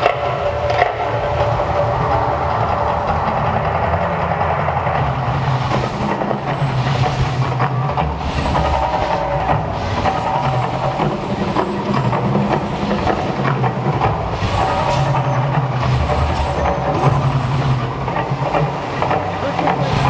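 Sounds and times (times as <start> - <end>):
loud continuous rumbling: 0.0 - 20.0
hiss: 4.5 - 20.0.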